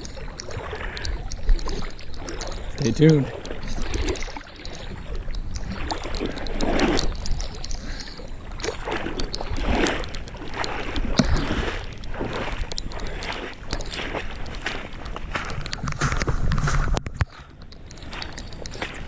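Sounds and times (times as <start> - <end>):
legs wading through water: 0.0 - 19.0.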